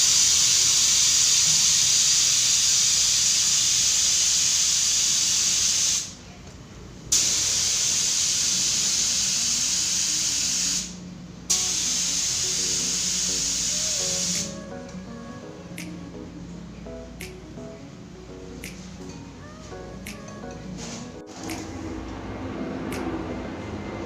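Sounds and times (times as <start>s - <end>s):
spray paint can hissing: 0.0s - 6.1s, 7.2s - 14.6s.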